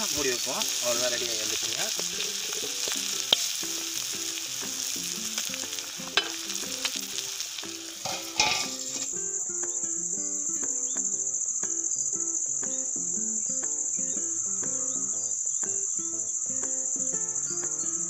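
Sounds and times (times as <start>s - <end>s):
crickets chirping: 0.0s - 18.0s
liver sizzling in a pan: 0.0s - 18.0s
metal spatula scraping a pan: 2.0s - 4.1s, 6.0s - 6.6s, 7.9s - 9.2s
steel bowl clattering: 6.0s - 6.8s, 7.9s - 9.1s.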